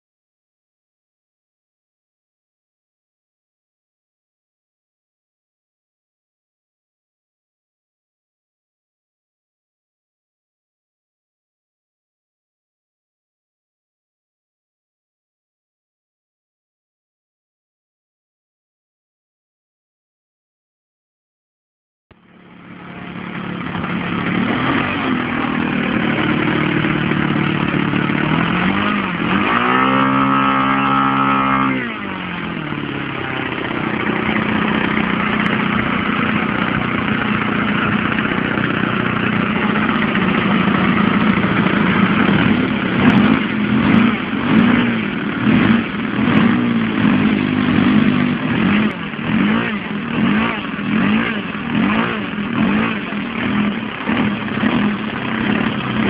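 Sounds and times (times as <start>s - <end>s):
model airplane engine revving: 22.2s - 56.0s.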